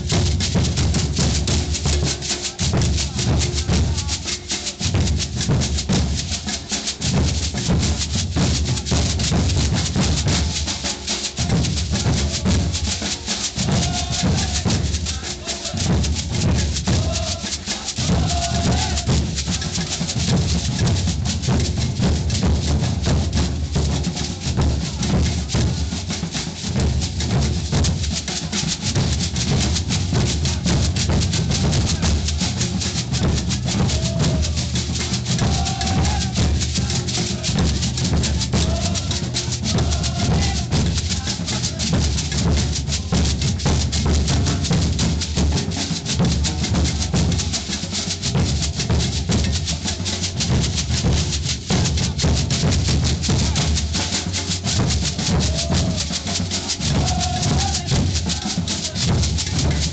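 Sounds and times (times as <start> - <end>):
deep bass drums: 0.0 - 1.9, 29.0 - 47.6, 50.5 - 54.0
shakers hissing: 0.0 - 59.9.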